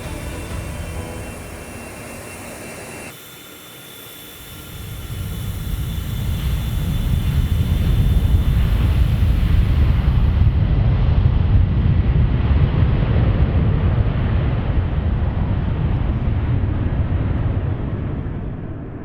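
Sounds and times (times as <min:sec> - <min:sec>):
jet engines rumbling: 0:00.0 - 0:10.6.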